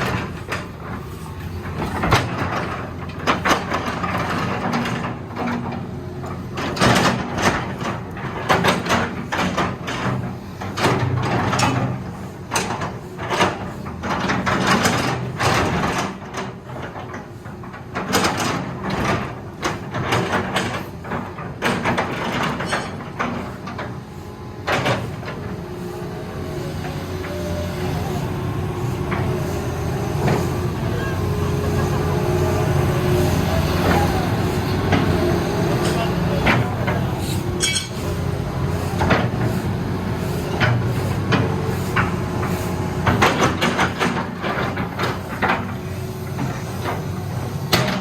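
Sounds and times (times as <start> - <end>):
diesel excavator engine running: 0.0 - 48.0
sharp metal clanks and knocks: 19.6 - 23.6, 35.8 - 38.1.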